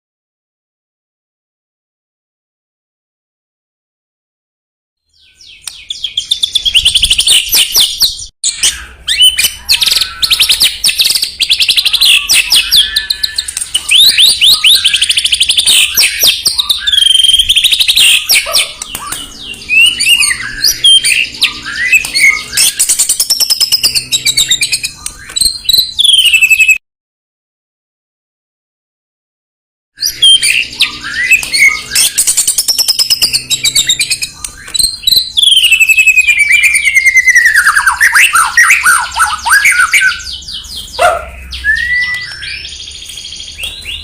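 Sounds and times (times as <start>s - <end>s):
bird singing whistles and trills: 5.1s - 26.8s, 30.0s - 44.0s.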